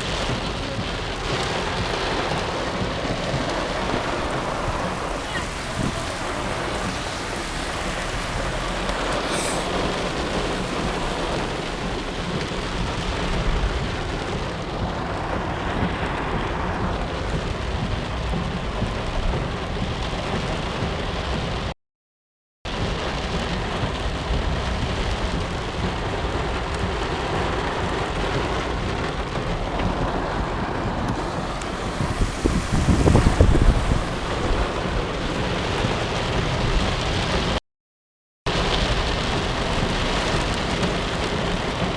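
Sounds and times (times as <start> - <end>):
heavy rain pouring: 0.0 - 21.8, 22.7 - 37.6, 38.5 - 41.9.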